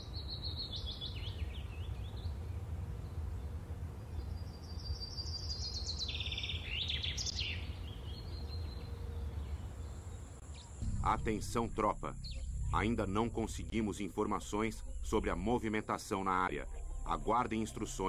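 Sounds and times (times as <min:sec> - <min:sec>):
birds chirping in trilling runs: 0:00.0 - 0:10.8
steady low rumble: 0:07.6 - 0:18.0.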